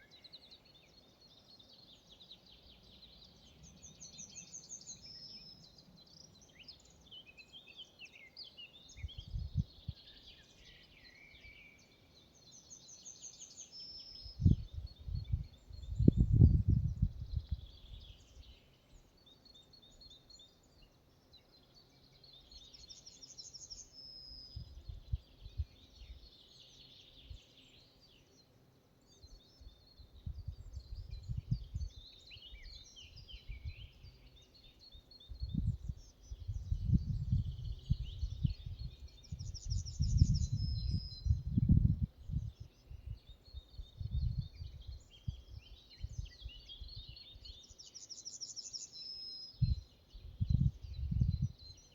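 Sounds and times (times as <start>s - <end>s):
wind rumbling on microphone: 8.9s - 10.1s, 14.0s - 18.6s, 24.4s - 27.4s, 29.7s - 34.1s, 35.2s - 47.6s, 49.6s - 51.8s.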